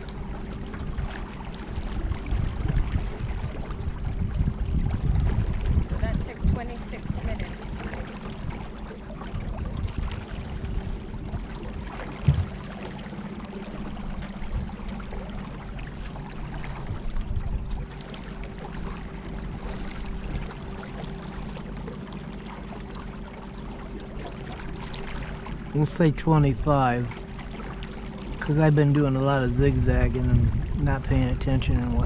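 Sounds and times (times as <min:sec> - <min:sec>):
water rushing along hull: 0:00.0 - 0:32.0
short knock: 0:12.2 - 0:12.6.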